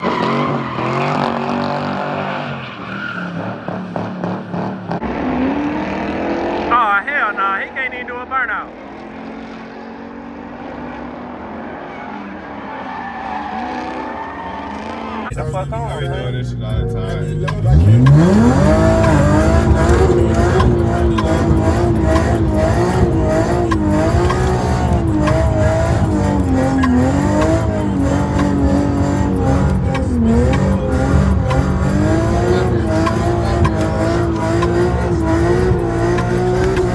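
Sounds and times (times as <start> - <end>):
tyres squealing: 13.1 - 36.9
exhaust crackles: 15.2 - 36.9
loud engine running hard: 17.2 - 36.9.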